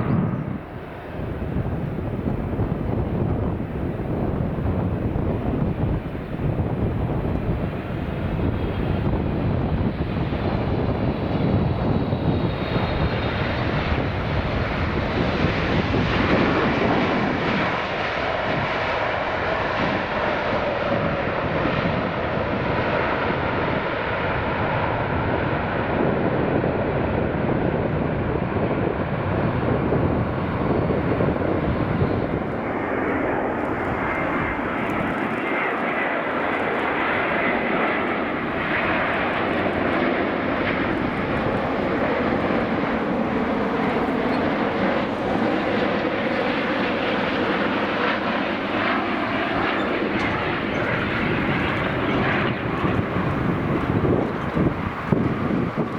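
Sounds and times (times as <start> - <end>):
jet airliner engines passing overhead: 0.0 - 55.9.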